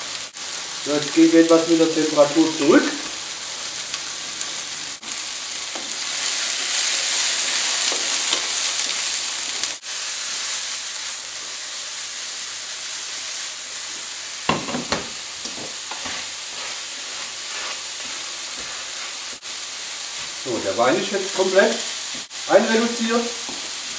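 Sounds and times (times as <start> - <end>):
frying sizzle in hot oil: 0.0 - 23.9
wooden spatula knocking on pan: 14.5 - 16.1.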